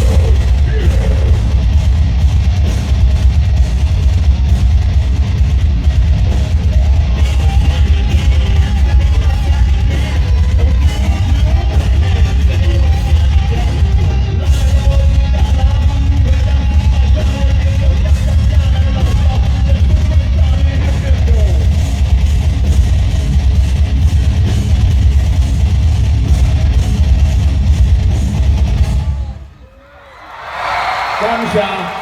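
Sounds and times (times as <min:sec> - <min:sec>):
heavy rock band playing: 0:00.0 - 0:29.5.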